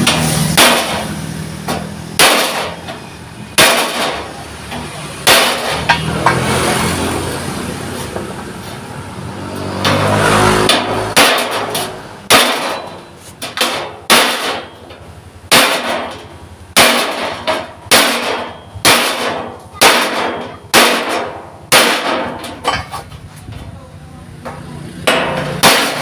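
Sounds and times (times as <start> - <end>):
hammer on steel plate: 0.0 - 3.0, 3.6 - 6.5, 9.8 - 23.1, 24.5 - 26.0
engine-like hum: 0.0 - 26.0.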